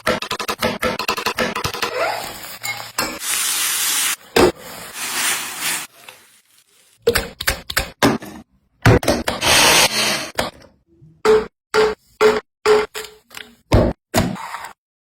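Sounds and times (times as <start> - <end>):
sizzling hot pan: 2.2 - 7.0.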